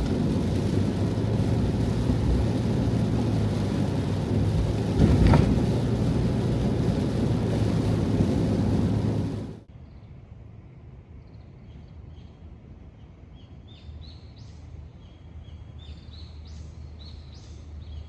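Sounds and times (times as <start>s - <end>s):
heavy rain drumming on van roof: 0.0s - 9.7s
thump: 5.0s - 5.6s.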